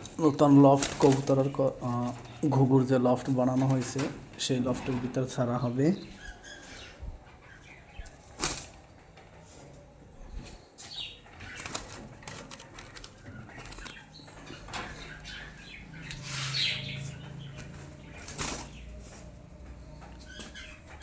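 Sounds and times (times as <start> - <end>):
wings flapping and fluttering: 0.0 - 2.5, 7.6 - 9.7, 11.2 - 15.2, 16.3 - 19.6
high bird chirps: 5.8 - 8.4, 13.2 - 21.0
rustles and knocks in cage: 6.2 - 21.0.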